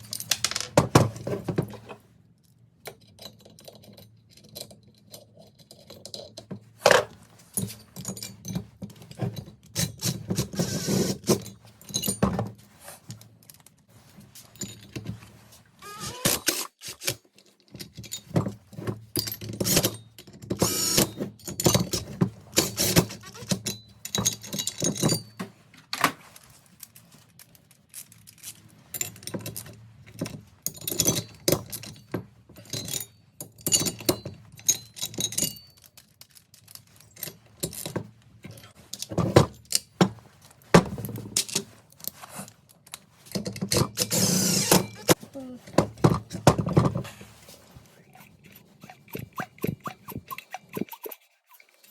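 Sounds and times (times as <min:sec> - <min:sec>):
metal tools clinking: 0:00.0 - 0:00.8, 0:14.4 - 0:15.2.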